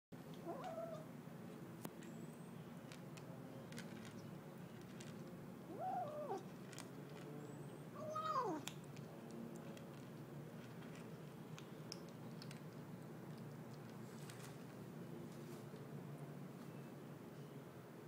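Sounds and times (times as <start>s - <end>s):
kitten meowing while eating: 0.5s - 1.1s, 5.7s - 6.4s, 8.0s - 8.7s.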